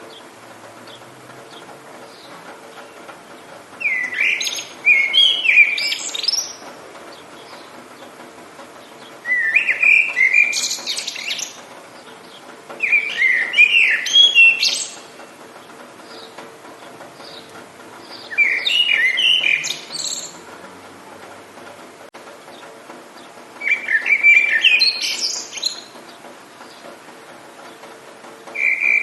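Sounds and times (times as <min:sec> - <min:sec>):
songbird singing: 0:00.0 - 0:29.0.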